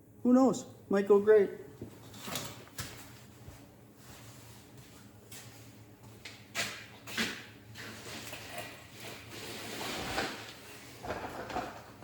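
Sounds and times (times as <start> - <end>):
low steady background noise: 0.0 - 9.1.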